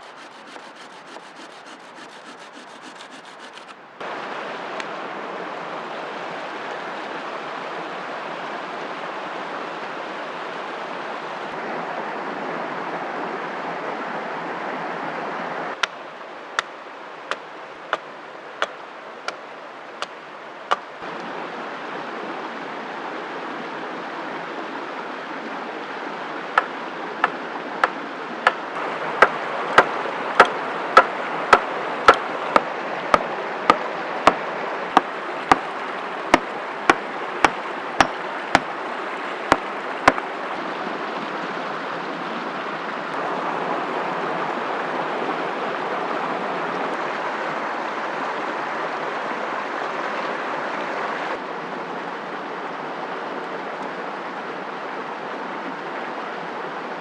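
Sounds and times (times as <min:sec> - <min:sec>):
axe striking wood: 0:00.0 - 0:03.8, 0:29.2 - 0:33.3, 0:35.0 - 0:35.7, 0:37.4 - 0:38.7, 0:39.5 - 0:40.2.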